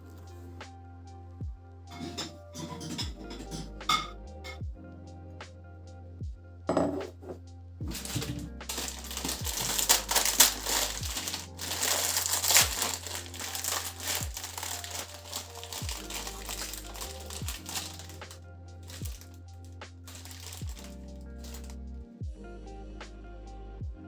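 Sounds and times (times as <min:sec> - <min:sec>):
background music with soft beat: 0:00.0 - 0:24.0
crinkling and rustling: 0:07.2 - 0:19.4, 0:20.1 - 0:21.8.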